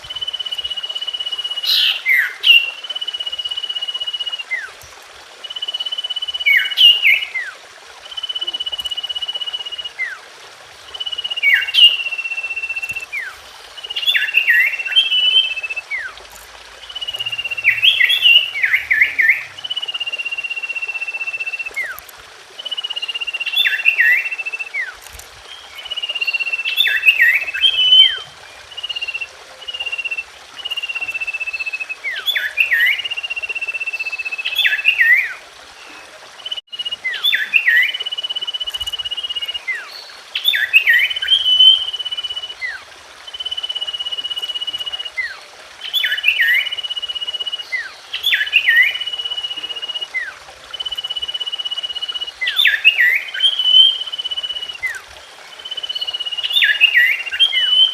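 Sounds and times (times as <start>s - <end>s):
bird song with whistled notes: 0.0s - 4.8s, 5.4s - 10.2s, 10.8s - 22.0s, 22.6s - 57.9s
steady hiss: 0.0s - 57.8s.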